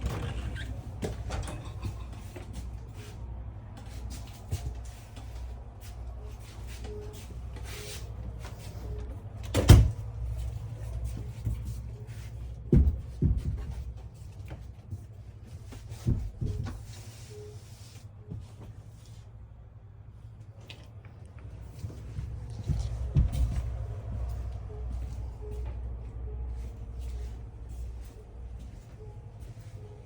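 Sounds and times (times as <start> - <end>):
steady low hum: 0.0 - 30.0
knocks and thumps: 12.7 - 13.9.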